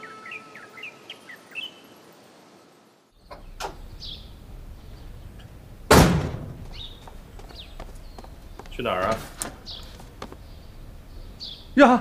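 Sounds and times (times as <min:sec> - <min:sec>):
birds chirping: 0:00.0 - 0:12.0
heavy door thud: 0:05.9 - 0:07.0.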